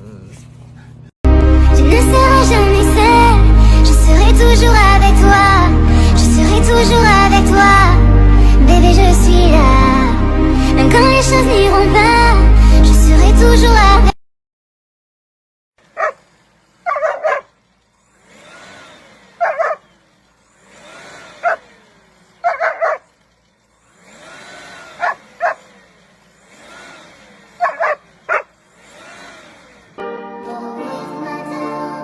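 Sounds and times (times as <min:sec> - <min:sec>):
dog barking: 0:15.9 - 0:16.2, 0:16.8 - 0:17.5, 0:19.4 - 0:19.9, 0:21.4 - 0:21.6, 0:22.4 - 0:23.1, 0:25.0 - 0:25.6, 0:27.6 - 0:28.5.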